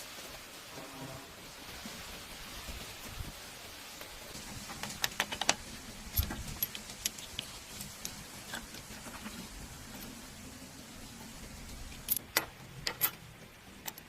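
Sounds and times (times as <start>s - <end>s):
metal tools clicking and tapping: 4.8s - 8.9s, 11.9s - 14.0s.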